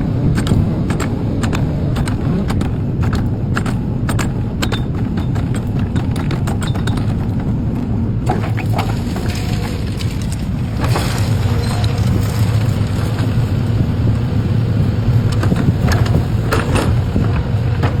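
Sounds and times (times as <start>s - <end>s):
heavy diesel engine rumbling: 0.0s - 18.0s
short sharp knocks or creaks: 0.3s - 7.9s.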